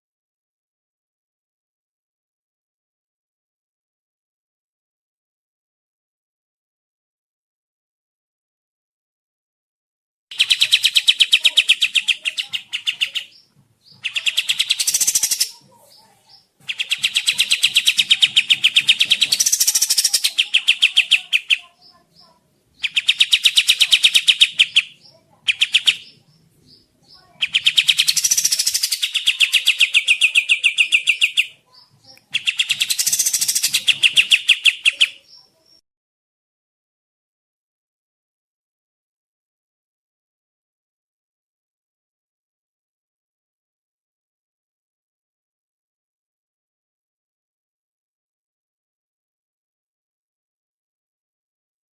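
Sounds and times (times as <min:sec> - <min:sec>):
songbird rattling trill: 0:10.3 - 0:15.6, 0:16.7 - 0:22.0, 0:22.8 - 0:26.4, 0:27.1 - 0:35.5.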